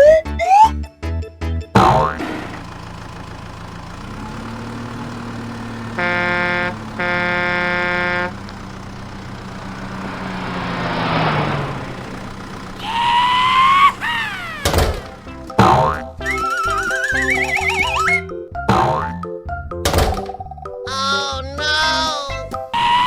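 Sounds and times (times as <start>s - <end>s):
cartoon engine hum: 1.8s - 19.2s, 20.9s - 23.0s
horn honking: 4.9s - 18.8s, 22.8s - 23.0s
whistle-like pitch slides: 12.8s - 14.7s, 16.2s - 18.2s.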